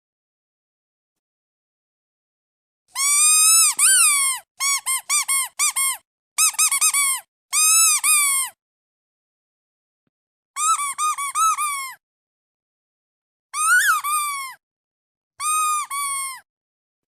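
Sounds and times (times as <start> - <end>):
squeaky duck toy squeaking: 3.0 - 8.6, 10.6 - 12.0, 13.6 - 14.6, 15.4 - 16.4.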